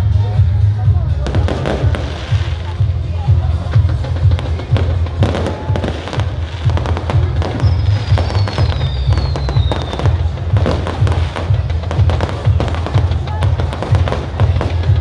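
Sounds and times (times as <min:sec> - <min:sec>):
fireworks bursting and crackling: 0:01.2 - 0:15.0
firework whistle falling: 0:07.4 - 0:10.2.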